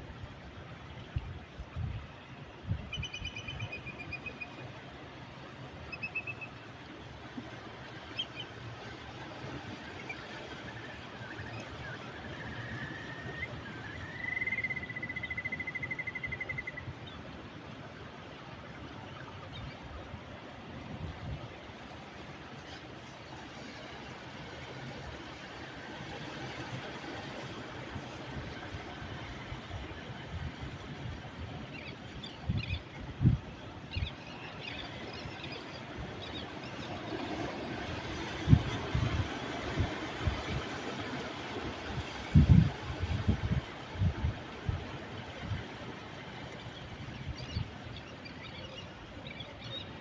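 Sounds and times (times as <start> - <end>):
ocean surf: 0.0 - 50.0
faint bird chirps: 2.9 - 4.6.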